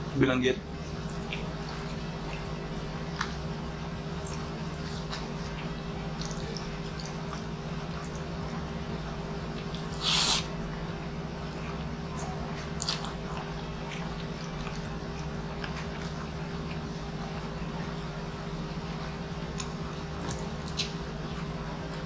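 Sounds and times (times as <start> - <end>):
steady low hum: 0.0 - 22.0
person chewing food: 0.8 - 8.7, 9.4 - 10.8, 11.4 - 18.1, 18.8 - 22.0
wet mouth clicks: 9.6 - 10.5, 19.6 - 21.0.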